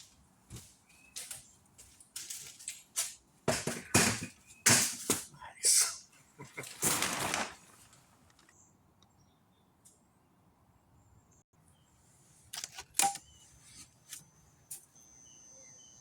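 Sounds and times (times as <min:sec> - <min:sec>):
lamps clicking and knocking: 0:03.5 - 0:05.3.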